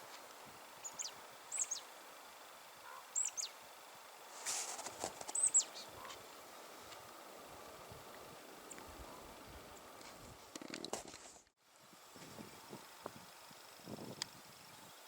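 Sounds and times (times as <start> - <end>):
small birds chirping: 0.0 - 10.7
brief rustle: 4.3 - 7.1, 10.0 - 11.5.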